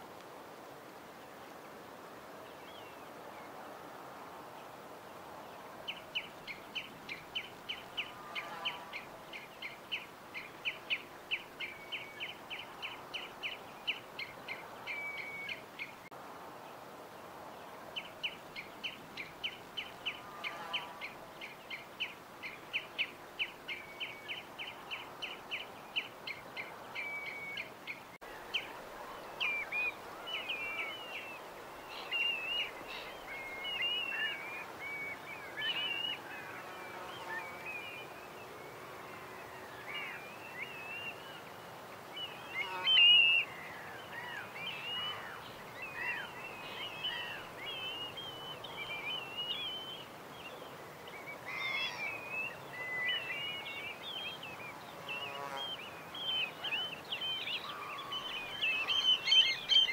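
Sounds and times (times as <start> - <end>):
steady background hiss: 0.0 - 59.9
songbird chirping rapidly: 42.2 - 59.9
fainter lower bird call: 51.1 - 59.9.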